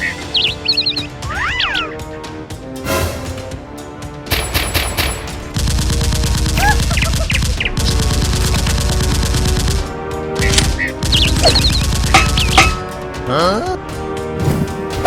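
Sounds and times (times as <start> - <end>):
background music: 0.0 - 15.0
automatic gunfire: 4.3 - 9.9.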